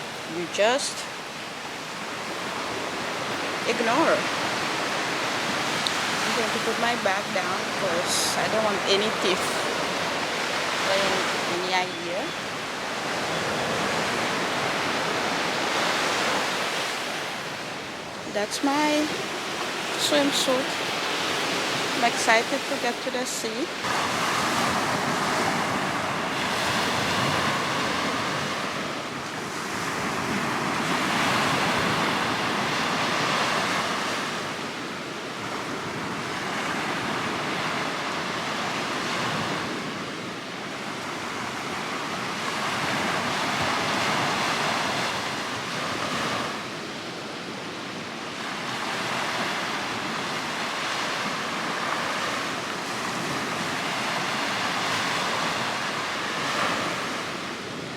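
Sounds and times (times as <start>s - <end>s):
surf washing on shore: 0.0s - 57.9s.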